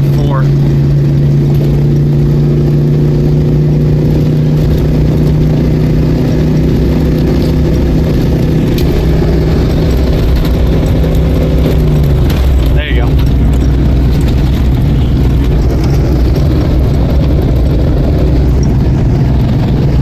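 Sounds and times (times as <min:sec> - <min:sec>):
car engine running under load: 0:00.0 - 0:20.0.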